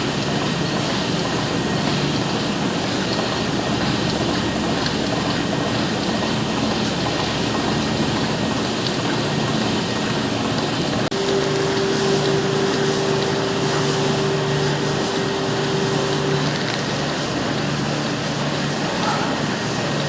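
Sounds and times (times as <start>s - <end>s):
milking machinery running: 0.0s - 20.0s
steady hum: 4.2s - 20.0s.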